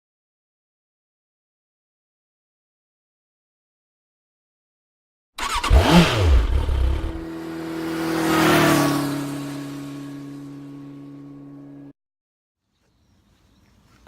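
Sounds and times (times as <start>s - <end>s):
motorcycle engine revving past: 5.4s - 11.9s.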